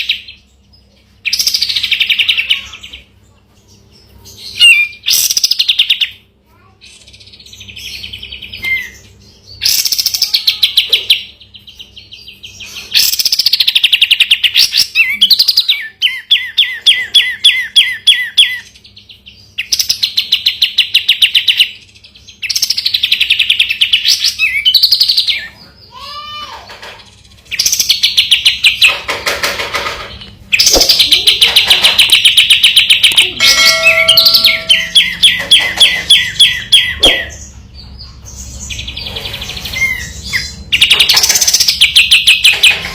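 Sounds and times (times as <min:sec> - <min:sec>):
bird singing rattling trills: 0:26.7 - 0:42.9.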